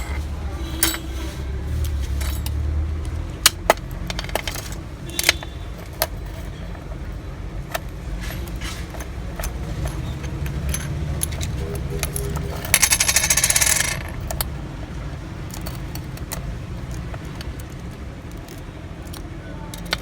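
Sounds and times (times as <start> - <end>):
small metal tool clicks: 15.5 - 20.0.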